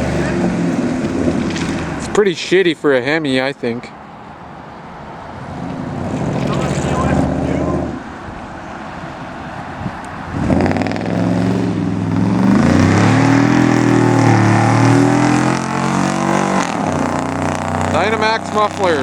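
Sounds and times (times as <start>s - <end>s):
engine revving: 5.6s - 8.0s, 10.3s - 19.0s.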